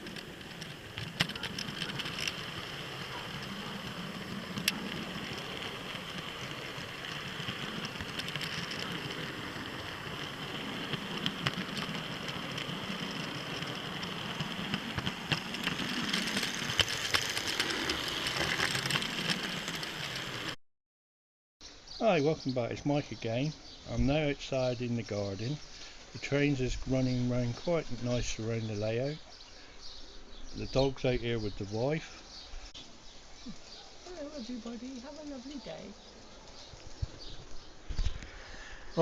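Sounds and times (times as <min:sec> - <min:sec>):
model train motor hum: 0:00.0 - 0:20.6
wheels clicking over rail joints: 0:00.0 - 0:20.6, 0:33.6 - 0:37.7.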